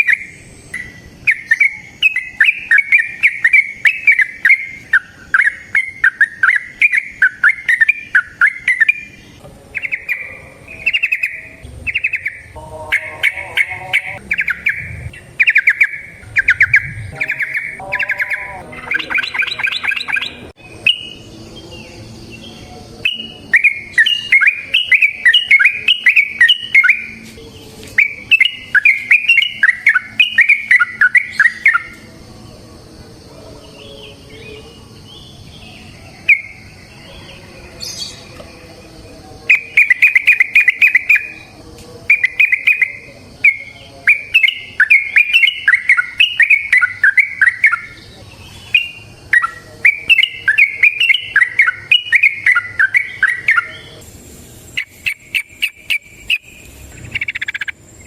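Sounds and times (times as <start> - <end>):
bird bubbling song: 0.0 - 21.3, 54.8 - 58.0.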